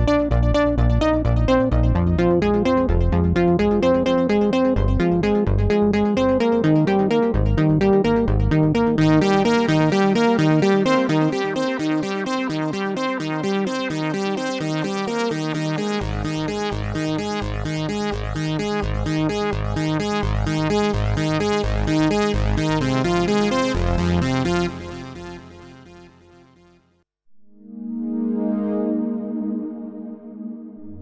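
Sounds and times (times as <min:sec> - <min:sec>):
synthesizer bass part: 0:00.0 - 0:26.5
synthesizer short repeating notes: 0:06.4 - 0:26.4.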